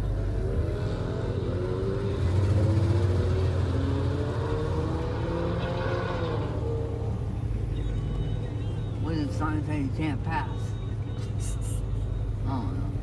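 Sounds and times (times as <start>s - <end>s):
car engine rumbling in cabin: 6.3s - 13.0s.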